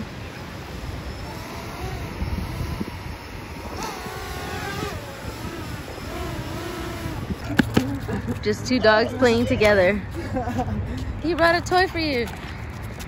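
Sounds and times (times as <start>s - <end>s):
wind rumbling on microphone: 0.0s - 13.0s
dirt bike engine revving: 1.1s - 8.2s.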